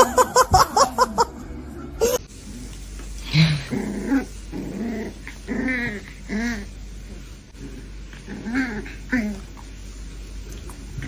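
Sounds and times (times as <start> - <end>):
dog growling: 3.2 - 9.7.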